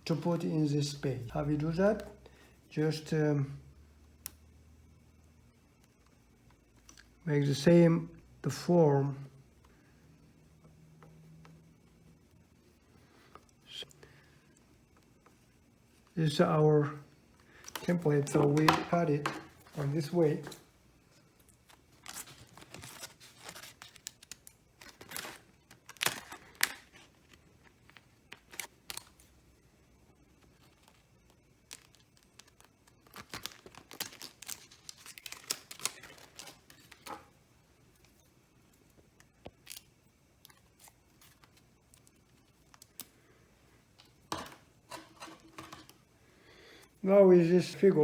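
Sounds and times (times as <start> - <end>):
paper rustling: 21.5 - 29.2, 30.4 - 37.3.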